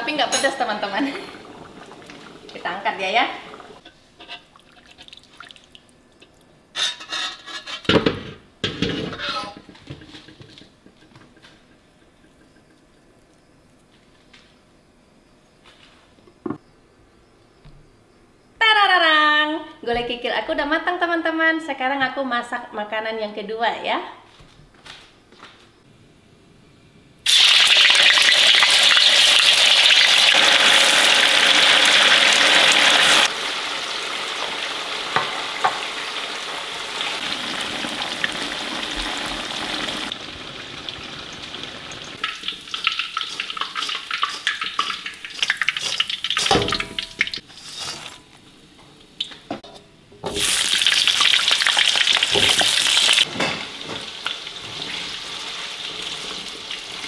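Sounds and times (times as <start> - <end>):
food sizzling in hot oil: 27.3 - 48.3, 50.2 - 57.0
oil popping and crackling: 27.3 - 48.4, 50.3 - 53.3.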